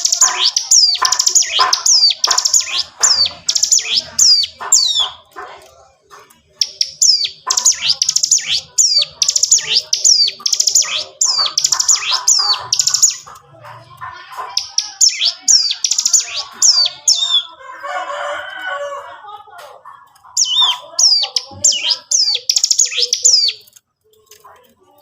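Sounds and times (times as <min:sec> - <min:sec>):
bird singing high sharp notes: 0:00.0 - 0:05.2, 0:06.6 - 0:13.3, 0:14.6 - 0:17.5, 0:20.4 - 0:23.7
soft low bird chatter: 0:00.0 - 0:25.0.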